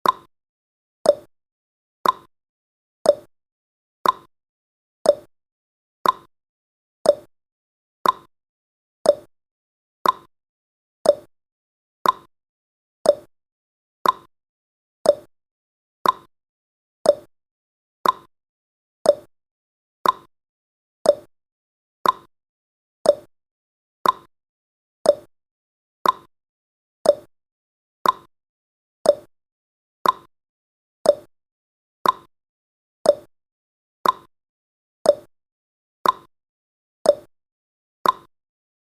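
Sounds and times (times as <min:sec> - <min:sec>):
clock ticking: 0:02.0 - 0:02.3, 0:04.0 - 0:04.3, 0:06.0 - 0:06.3, 0:08.0 - 0:08.3, 0:10.0 - 0:10.3, 0:12.0 - 0:12.3, 0:13.1 - 0:13.3, 0:14.0 - 0:14.3, 0:15.1 - 0:15.3, 0:16.0 - 0:16.3, 0:18.0 - 0:18.3, 0:20.0 - 0:20.3, 0:22.0 - 0:22.3, 0:24.0 - 0:24.3, 0:25.1 - 0:25.3, 0:26.0 - 0:26.3, 0:27.1 - 0:27.3, 0:28.0 - 0:28.3, 0:29.1 - 0:29.3, 0:30.0 - 0:30.3, 0:32.0 - 0:32.3, 0:33.1 - 0:33.3, 0:34.0 - 0:34.3, 0:36.0 - 0:36.3, 0:38.0 - 0:38.3.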